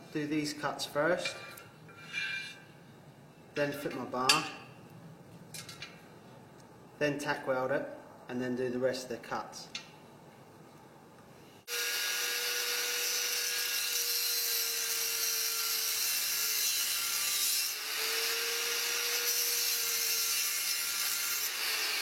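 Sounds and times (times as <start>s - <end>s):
angle grinder cutting metal: 11.7s - 22.0s.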